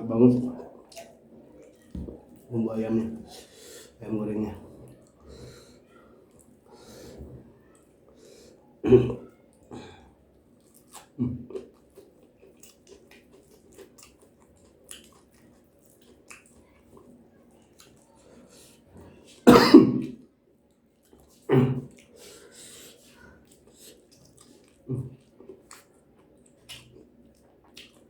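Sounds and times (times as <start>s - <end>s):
faint chewing: 0.0s - 19.5s, 20.1s - 28.0s
person coughing: 8.8s - 10.0s, 19.5s - 20.1s, 21.5s - 21.8s.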